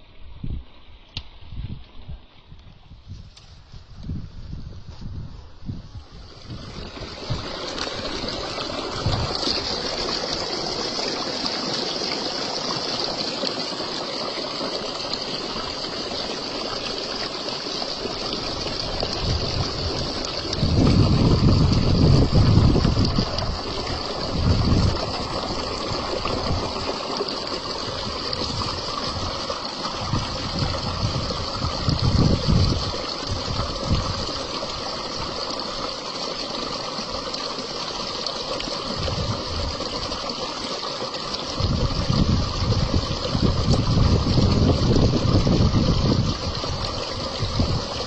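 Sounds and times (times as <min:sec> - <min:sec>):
wind gusting on microphone: 0:01.4 - 0:10.1, 0:18.4 - 0:26.9, 0:27.8 - 0:34.8, 0:38.9 - 0:40.1, 0:41.5 - 0:48.0
stream water rushing: 0:06.2 - 0:48.0.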